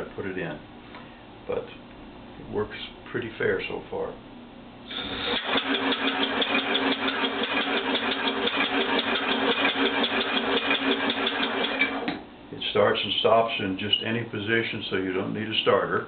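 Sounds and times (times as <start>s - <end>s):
compressed-air engine running: 4.9s - 12.1s.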